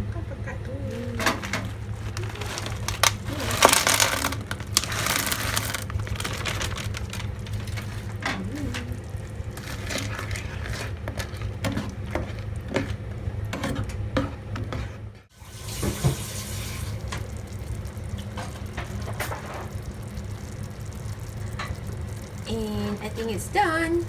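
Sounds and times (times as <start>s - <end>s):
steady low hum: 0.0s - 15.3s
utensils clinking: 1.0s - 14.4s.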